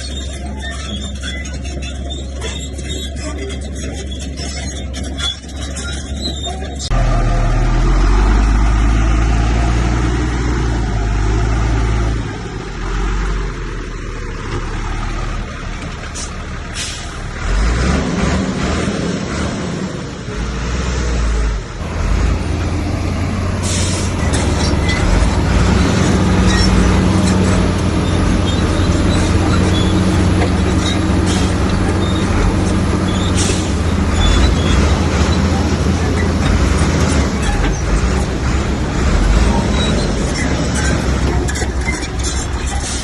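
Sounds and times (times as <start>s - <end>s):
metallic clicks and squeaks: 0.0s - 7.0s, 14.4s - 17.3s, 23.6s - 43.0s
diesel earthmover engine: 0.0s - 43.0s.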